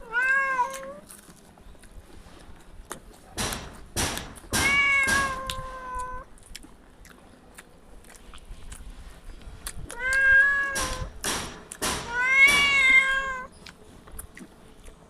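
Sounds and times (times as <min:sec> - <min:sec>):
cat meowing: 0:00.0 - 0:01.0, 0:04.6 - 0:06.3, 0:09.9 - 0:11.2, 0:12.0 - 0:13.5.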